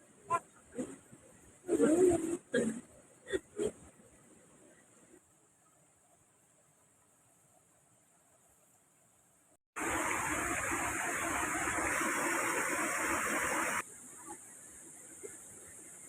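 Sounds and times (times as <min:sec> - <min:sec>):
rush of water: 0:09.8 - 0:16.0.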